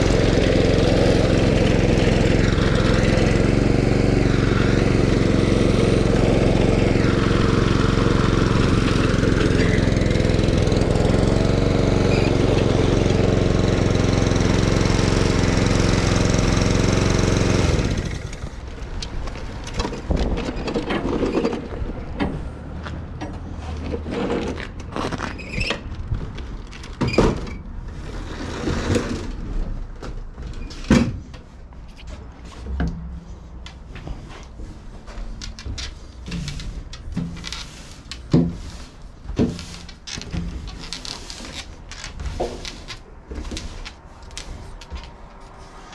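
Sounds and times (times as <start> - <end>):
lawn mower engine running: 0.0 - 19.9.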